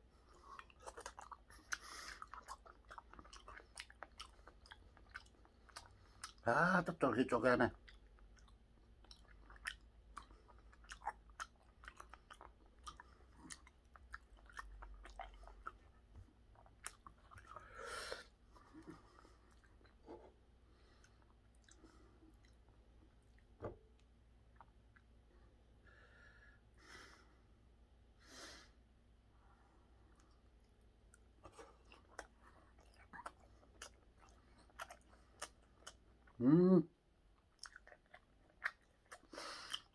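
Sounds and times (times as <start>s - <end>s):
close chewing: 0.2s - 7.0s, 7.7s - 20.0s, 30.1s - 36.4s, 37.4s - 39.9s.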